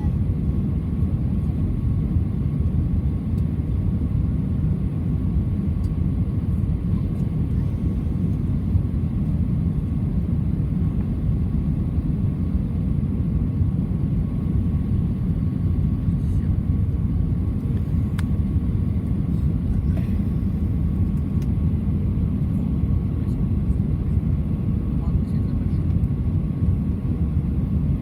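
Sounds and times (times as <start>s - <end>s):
faint steady whine: 0.0s - 21.5s
airplane cabin rumble: 0.0s - 28.0s.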